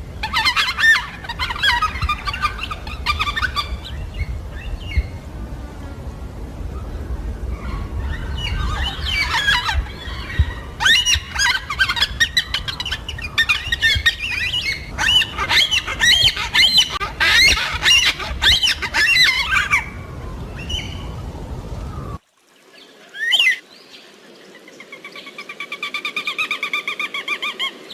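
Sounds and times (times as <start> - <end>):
cockatoos squawking: 0.2 - 4.4, 7.5 - 21.0.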